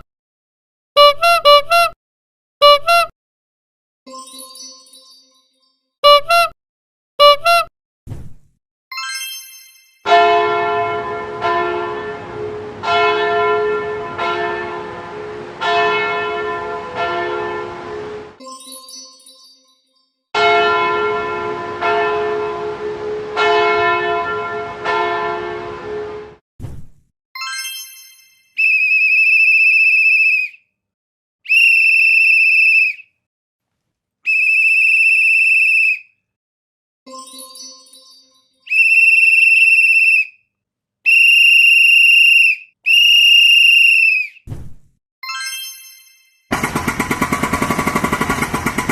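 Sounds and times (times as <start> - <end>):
large church bell tolling: 10.1 - 17.9, 20.4 - 26.1
pea whistle trilling blasts: 28.6 - 30.6, 31.5 - 33.0, 34.3 - 36.0, 38.7 - 40.4, 41.1 - 44.4.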